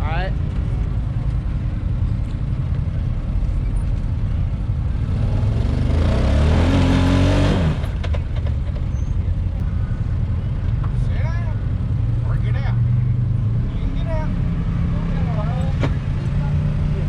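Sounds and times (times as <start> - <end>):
utility vehicle engine revving: 3.8 - 9.4, 11.7 - 17.0.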